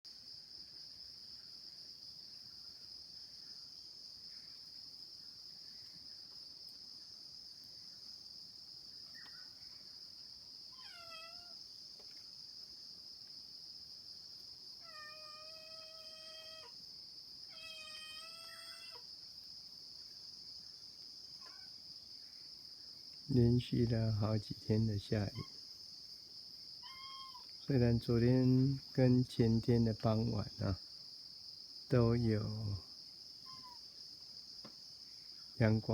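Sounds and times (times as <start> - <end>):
crickets chirping: 0.1 - 35.9
cat meowing: 10.8 - 11.6, 14.8 - 16.8, 17.5 - 19.0, 26.8 - 27.5, 33.5 - 33.8.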